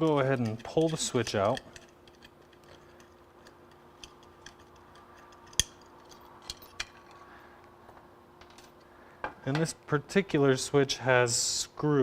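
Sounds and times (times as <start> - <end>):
parts being handled: 0.0 - 9.7.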